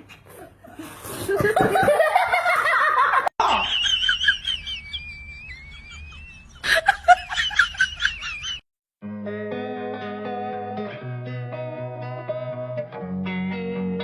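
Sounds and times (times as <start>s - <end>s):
high-pitched laughter: 0.3s - 8.6s.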